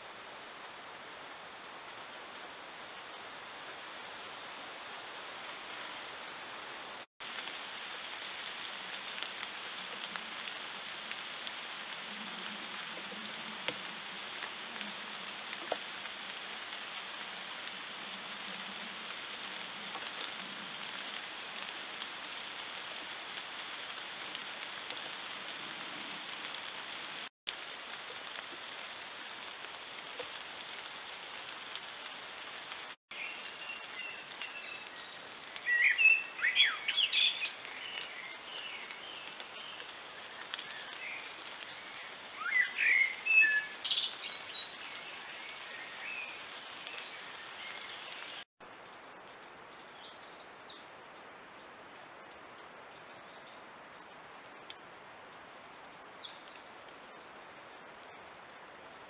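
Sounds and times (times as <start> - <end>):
wild birds chirping: 33.1 - 59.0.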